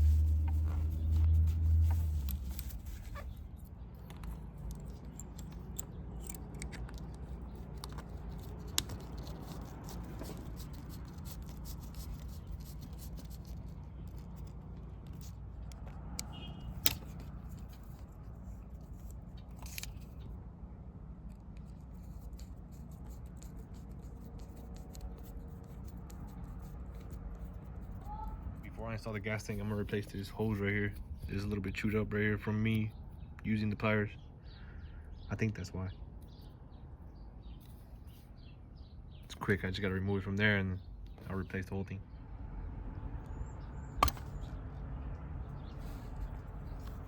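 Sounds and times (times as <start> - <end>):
low hum: 0.0 - 11.6
hand tools clicking and scraping: 0.0 - 18.1.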